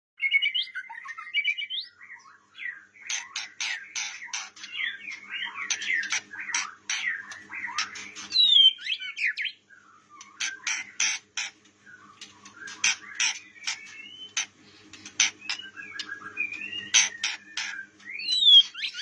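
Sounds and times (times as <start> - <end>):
bird singing whistled song: 0.2 - 2.8, 4.8 - 10.6, 11.9 - 14.4, 15.4 - 19.0.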